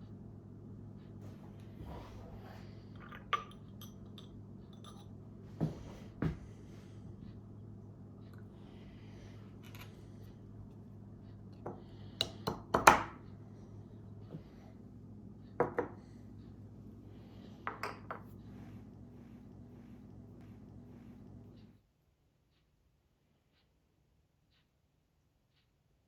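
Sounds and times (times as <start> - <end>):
low steady hum: 0.0 - 21.8
kitchenware clinking and knocking: 3.0 - 5.1.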